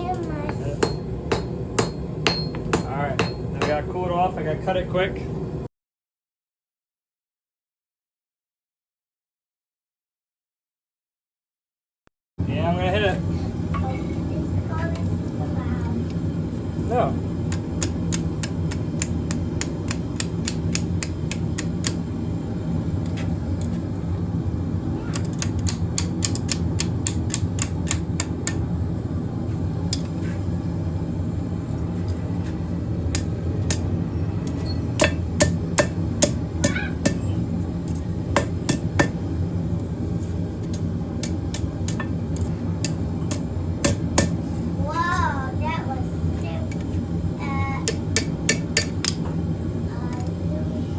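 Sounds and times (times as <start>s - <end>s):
hammer striking steel on anvil: 0.5s - 3.9s, 34.5s - 37.3s, 38.3s - 39.2s, 42.8s - 44.4s, 47.8s - 49.2s
low hum: 25.8s - 45.0s.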